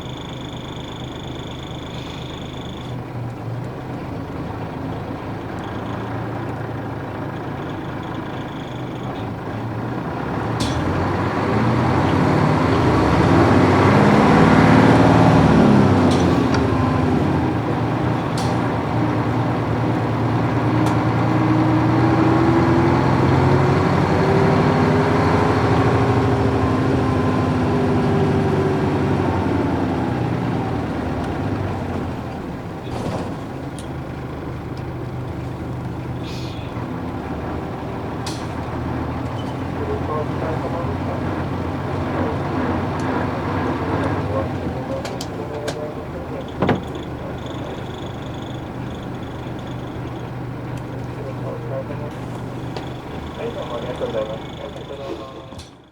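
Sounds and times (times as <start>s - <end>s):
bus diesel engine: 0.0s - 55.9s.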